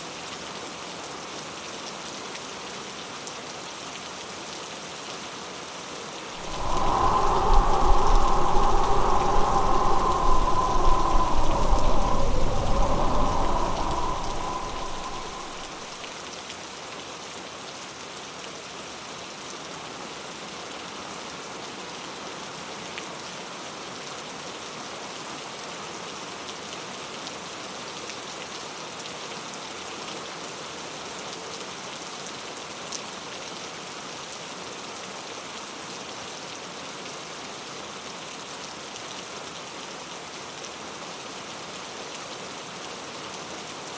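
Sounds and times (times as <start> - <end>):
rain patter on a surface: 0.0 - 5.8, 32.8 - 43.9
low rumble: 6.4 - 16.0.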